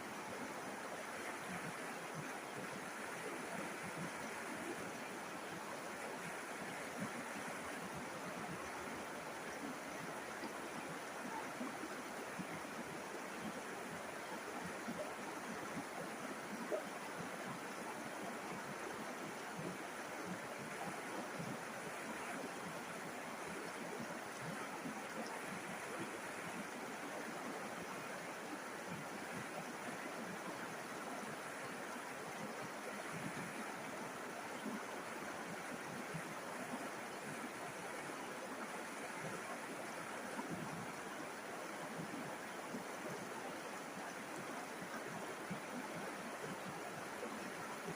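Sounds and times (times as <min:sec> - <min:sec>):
river water rushing: 0:00.0 - 0:47.9.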